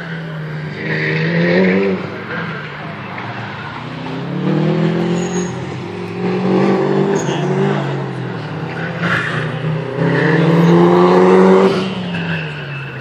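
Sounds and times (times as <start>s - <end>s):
car engine revving hard: 3.8s - 12.2s.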